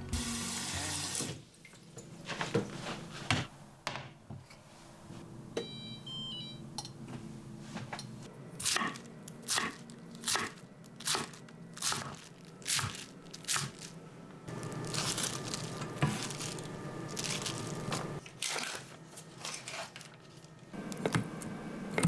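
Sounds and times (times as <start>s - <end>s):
crisp crunching: 9.7s - 20.6s.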